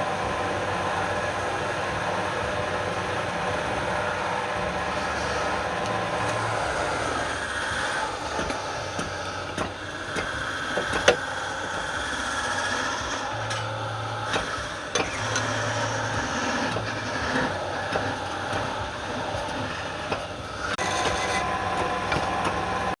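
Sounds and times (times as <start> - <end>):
wood lathe running: 0.0 - 23.0
sharp clicks and knocks: 7.9 - 22.6.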